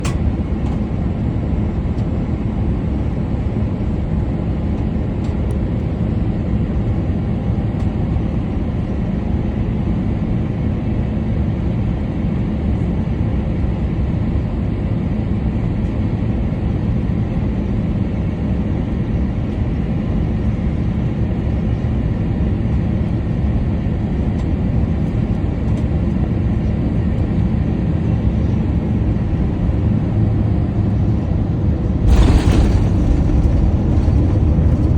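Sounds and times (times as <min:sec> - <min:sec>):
airliner engines rumbling: 0:00.0 - 0:34.9
rushing air: 0:32.0 - 0:34.9.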